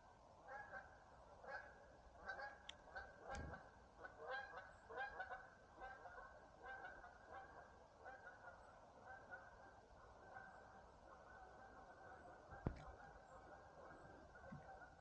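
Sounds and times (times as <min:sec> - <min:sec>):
faint geese honking: 0:00.0 - 0:15.0.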